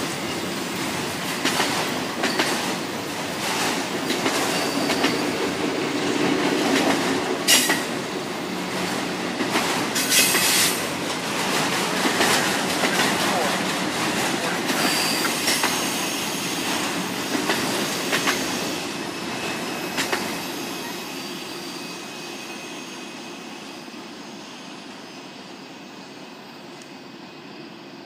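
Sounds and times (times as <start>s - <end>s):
wheels rumbling on rail: 0.0s - 22.6s
high wheel squeal: 4.4s - 5.4s, 14.8s - 16.7s, 18.3s - 26.0s.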